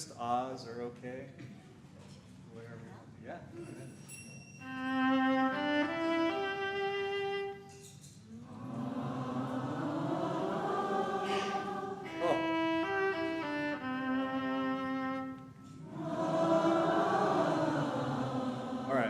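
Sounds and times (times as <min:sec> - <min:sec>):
solo violin: 0:04.6 - 0:07.7, 0:11.2 - 0:15.6
congregation singing: 0:08.4 - 0:13.8, 0:15.6 - 0:19.0.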